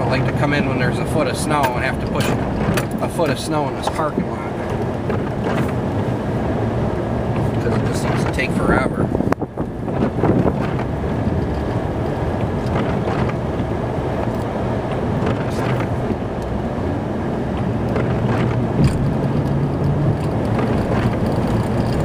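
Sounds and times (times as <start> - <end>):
truck engine drone: 0.0 - 22.0
light clicks and knocks: 1.2 - 5.8, 9.3 - 16.5, 17.5 - 22.0.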